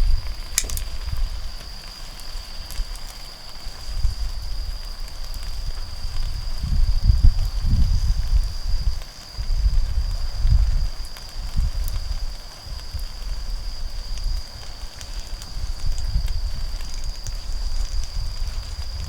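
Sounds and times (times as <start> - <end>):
insect trilling: 0.0 - 6.4
wood fire crackling: 0.0 - 7.6, 11.0 - 19.0.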